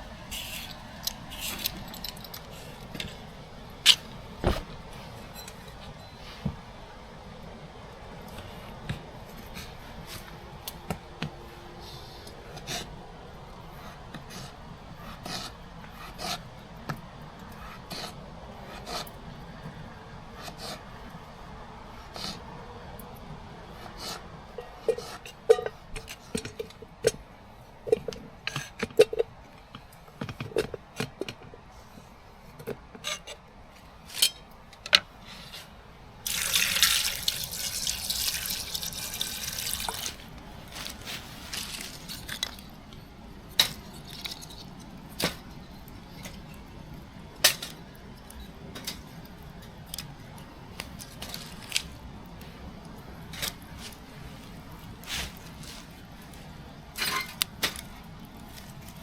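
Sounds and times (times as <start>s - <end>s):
water sloshing and dripping: 36.2s - 42.8s
hiss of water: 36.3s - 42.3s.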